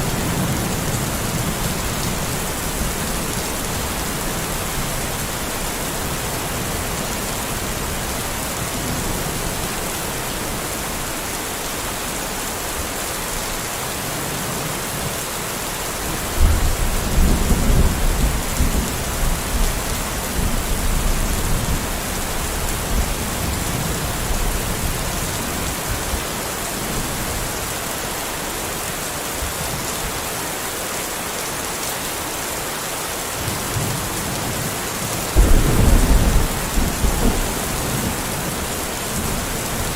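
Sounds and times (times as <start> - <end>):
steady rain: 0.0 - 39.9
thunder rumbling: 35.4 - 39.9.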